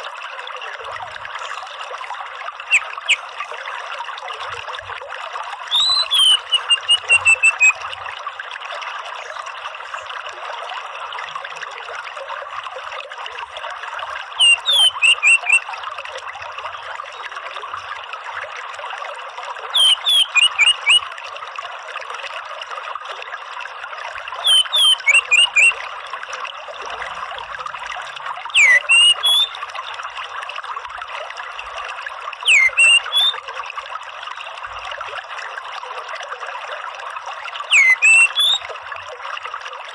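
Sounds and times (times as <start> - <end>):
running water: 0.0 - 39.9
thrush whistling calls: 2.6 - 3.5, 5.7 - 7.9, 14.3 - 15.7, 19.7 - 21.1, 24.4 - 25.8, 28.5 - 29.6, 32.4 - 33.4, 37.7 - 38.7.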